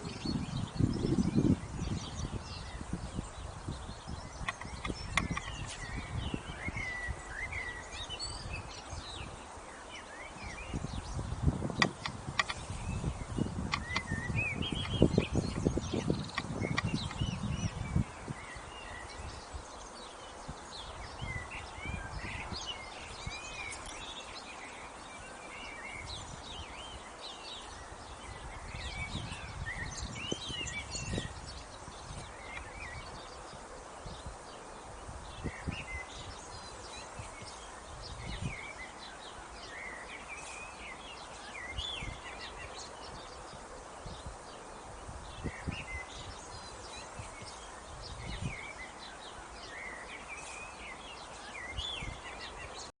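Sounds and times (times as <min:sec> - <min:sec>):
songbirds chirping: 0:00.0 - 0:53.0.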